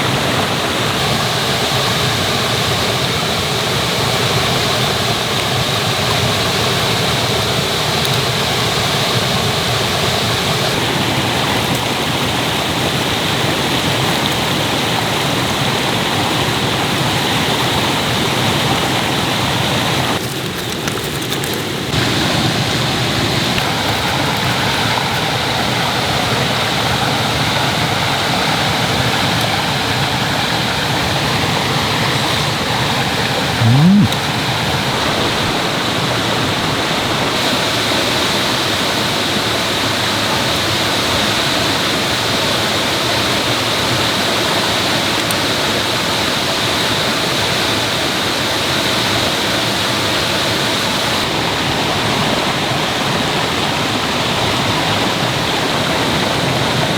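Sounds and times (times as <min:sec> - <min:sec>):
stream rushing over rocks: 0:00.0 - 0:56.9
low sound rising in pitch: 0:33.6 - 0:34.2.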